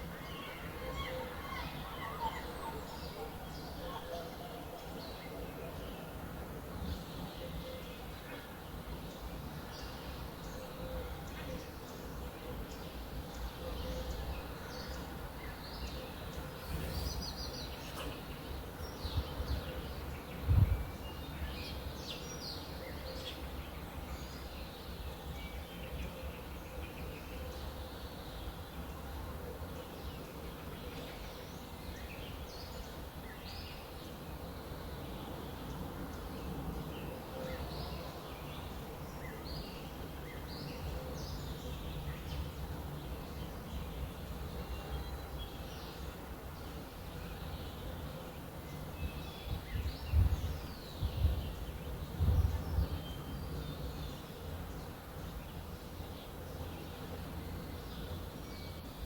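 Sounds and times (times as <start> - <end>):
small birds chirping: 12.6 - 23.4.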